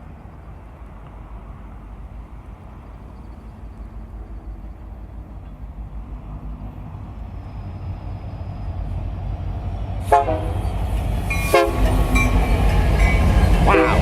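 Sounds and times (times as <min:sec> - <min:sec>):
locomotive engine rumble: 0:00.0 - 0:14.0
train horn blasts: 0:10.0 - 0:14.0.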